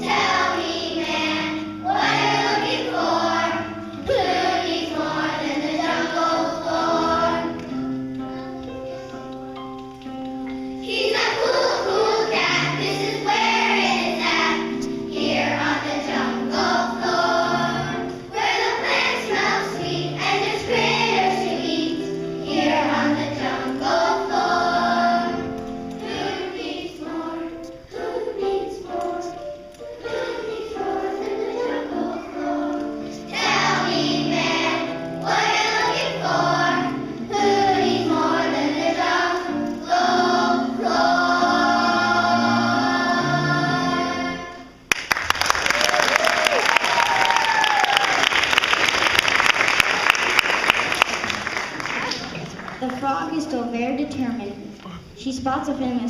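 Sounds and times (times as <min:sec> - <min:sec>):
children's choir singing: 0:00.0 - 0:09.3, 0:10.4 - 0:44.9
instrumental accompaniment: 0:00.0 - 0:44.9.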